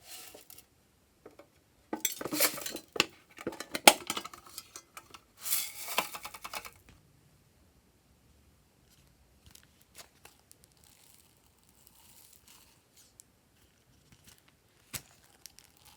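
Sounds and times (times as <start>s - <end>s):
utensil scraping bowl: 0.0s - 0.6s, 1.3s - 6.7s.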